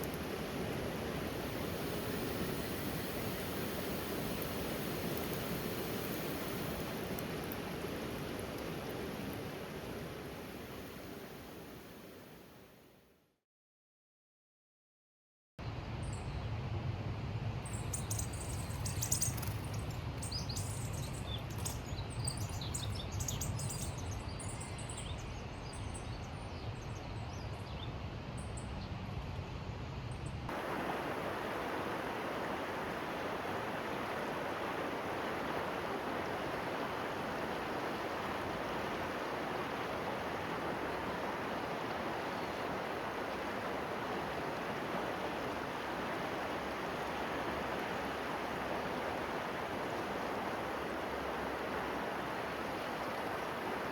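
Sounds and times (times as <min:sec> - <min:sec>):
rain hissing: 0:00.0 - 0:12.5, 0:30.5 - 0:53.9
rush of water: 0:00.0 - 0:12.8, 0:17.9 - 0:24.1, 0:30.5 - 0:53.9
small birds chirping: 0:17.7 - 0:27.6, 0:32.9 - 0:53.9.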